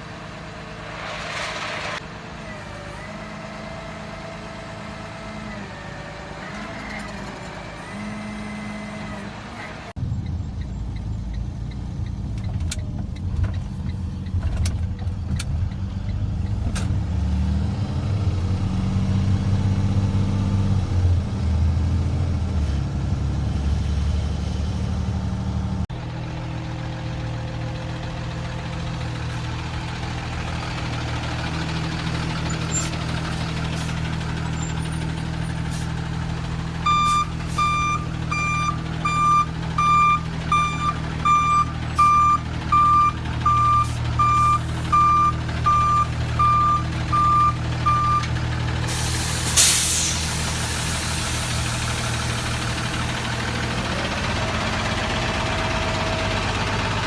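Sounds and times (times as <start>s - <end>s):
diesel truck engine running: 0.0s - 57.0s
reversing alarm beeping: 36.8s - 48.3s.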